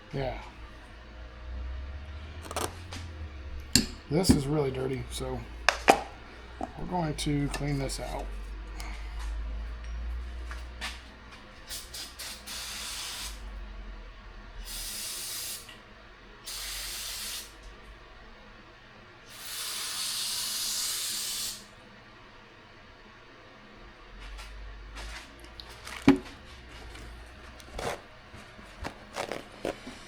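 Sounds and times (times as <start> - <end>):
aerosol spray hissing: 11.7 - 13.4, 14.7 - 15.7, 16.5 - 17.5, 19.3 - 21.7.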